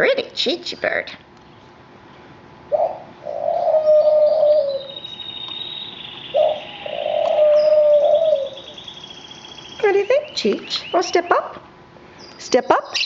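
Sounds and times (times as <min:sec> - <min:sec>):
dove cooing: 0:02.7 - 0:05.0, 0:06.1 - 0:10.9
canaries trilling faintly: 0:02.7 - 0:13.0.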